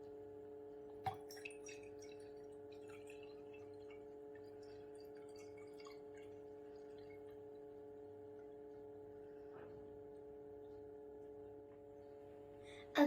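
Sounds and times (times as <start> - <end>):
light ticks and drips: 0.0 - 12.6
faint steady hum: 0.0 - 13.0.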